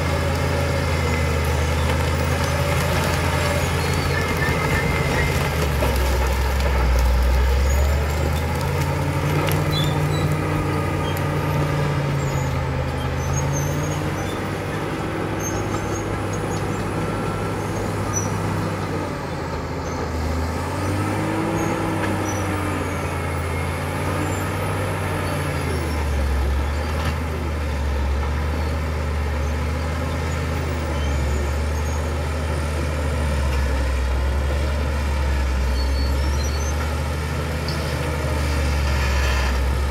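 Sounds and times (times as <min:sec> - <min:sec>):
bulldozer diesel engine under load: 0:00.0 - 0:39.9.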